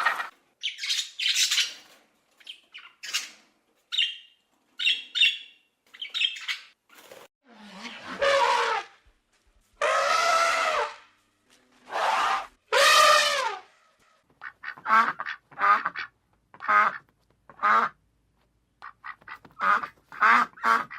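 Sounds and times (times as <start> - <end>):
ducks quacking: 14.4 - 18.0, 18.8 - 20.9.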